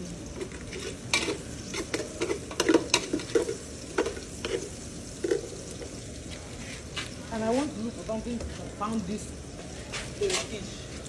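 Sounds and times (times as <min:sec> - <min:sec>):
food sizzling in oil: 0:00.0 - 0:11.0
spoon scraping a pot: 0:00.3 - 0:06.0.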